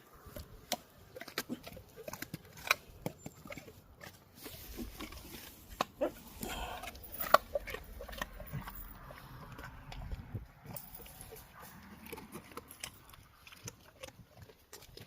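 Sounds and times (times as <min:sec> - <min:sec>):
dog chewing food: 0:00.0 - 0:15.0.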